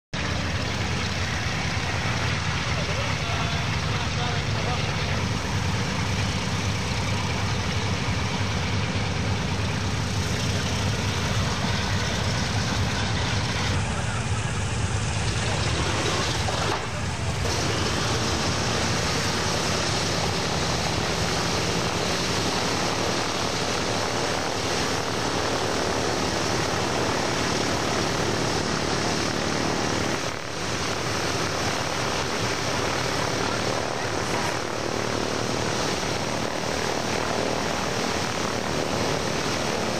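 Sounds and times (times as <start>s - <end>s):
propeller aircraft engines droning: 0.2s - 39.9s.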